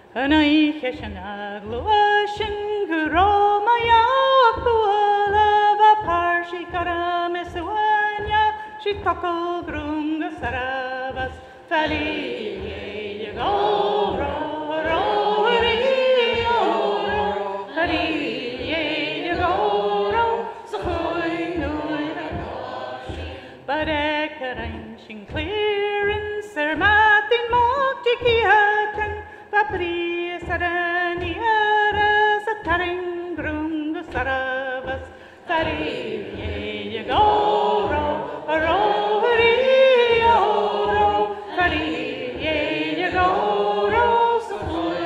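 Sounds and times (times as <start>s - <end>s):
person singing a cappella: 0.0s - 45.0s
cloth pounded on a table: 1.0s - 45.0s
group of voices singing: 7.4s - 26.9s, 33.4s - 45.0s.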